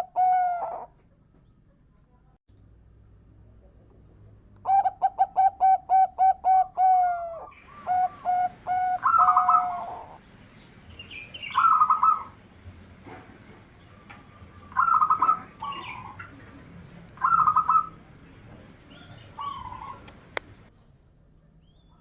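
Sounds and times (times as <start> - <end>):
dove cooing: 0.0 - 1.0, 4.6 - 10.2, 11.0 - 20.7.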